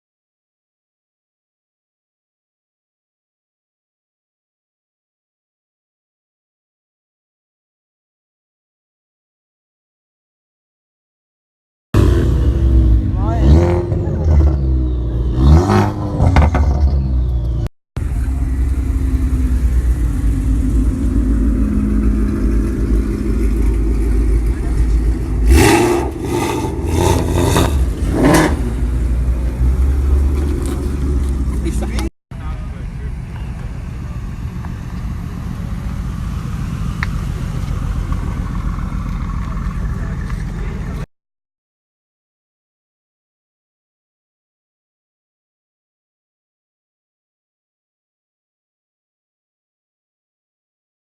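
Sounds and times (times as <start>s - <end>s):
car engine rumbling: 12.0s - 41.1s.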